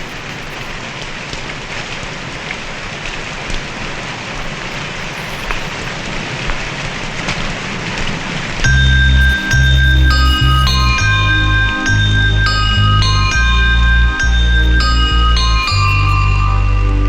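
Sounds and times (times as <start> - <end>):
sharp drip ticks: 0.0 - 0.8, 4.4 - 5.9, 8.6 - 11.2, 14.2 - 16.2
heavy rain pattering: 0.0 - 8.7.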